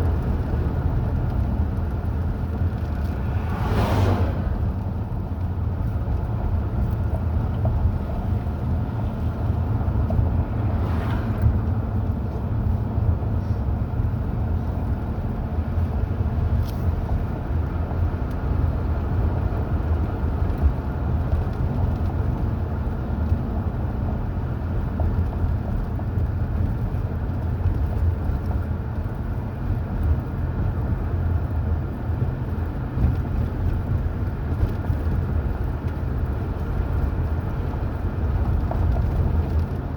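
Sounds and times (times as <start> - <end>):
car driving rumble: 0.0 - 39.9
swish: 3.3 - 4.7.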